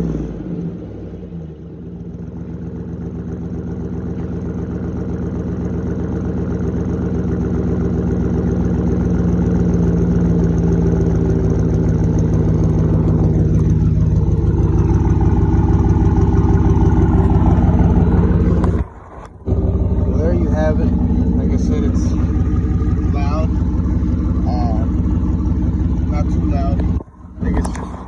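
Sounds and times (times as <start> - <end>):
truck engine idling: 0.0 - 28.0.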